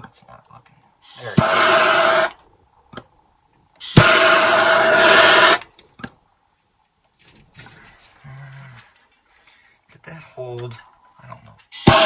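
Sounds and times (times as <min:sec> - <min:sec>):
torch flame hissing: 0:01.0 - 0:02.4, 0:03.8 - 0:05.7, 0:11.7 - 0:12.0
torch igniter click: 0:01.1 - 0:02.4, 0:03.8 - 0:05.7, 0:11.8 - 0:12.0.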